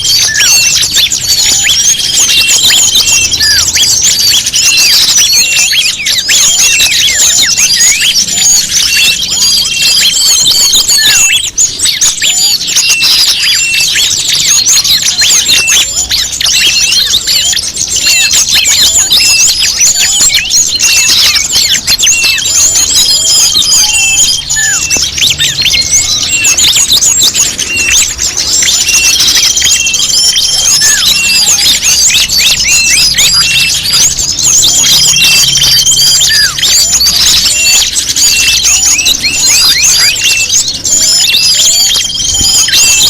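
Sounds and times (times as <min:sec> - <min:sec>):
songbirds chirping and twittering: 0:00.0 - 0:43.0
held high whistle: 0:19.2 - 0:43.0.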